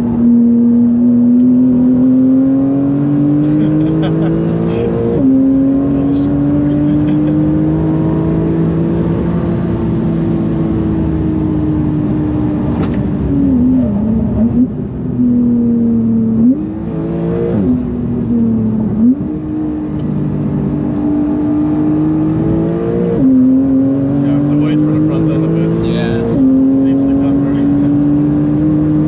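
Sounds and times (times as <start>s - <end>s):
car engine revving high: 0.0s - 29.0s.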